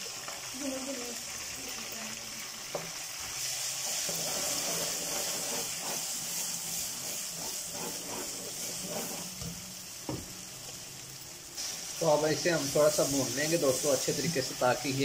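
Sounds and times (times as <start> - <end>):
paste sizzling in hot oil: 0.0 - 15.0
metal spoon scraping pan: 3.8 - 9.4.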